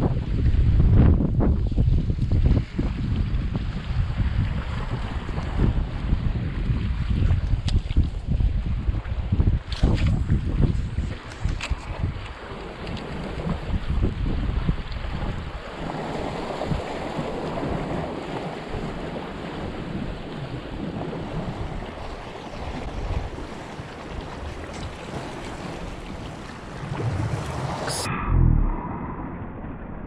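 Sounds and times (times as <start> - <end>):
wind buffeting microphone: 0.0 - 30.0
waves breaking on rocky shore: 9.8 - 28.1.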